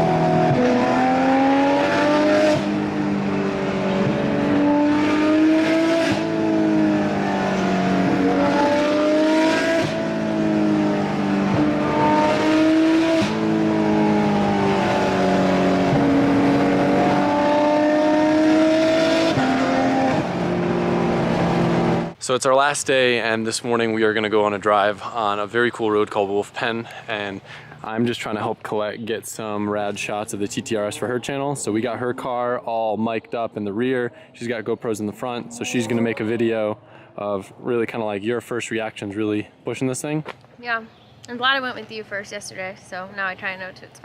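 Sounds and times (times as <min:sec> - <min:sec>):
sports car engine accelerating: 0:00.0 - 0:22.2, 0:29.3 - 0:39.2.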